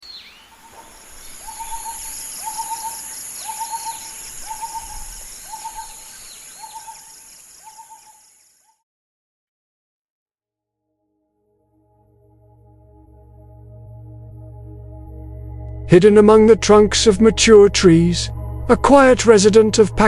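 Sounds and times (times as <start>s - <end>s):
descending whistled bird calls: 0.0s - 8.2s
bird hooting: 0.1s - 8.2s
high-pitched insect drone: 1.0s - 8.6s.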